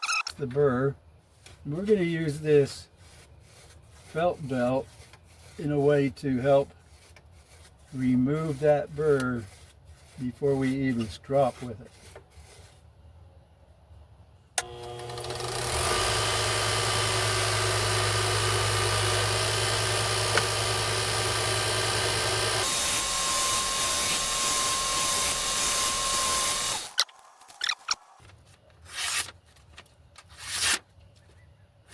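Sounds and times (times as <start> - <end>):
short brushing sounds: 1.3 - 12.9
belt grinder running: 14.6 - 27.1.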